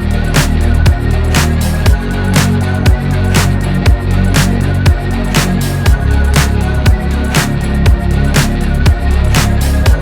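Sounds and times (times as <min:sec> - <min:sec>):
electronic pop song with heavy bass: 0:00.0 - 0:10.0.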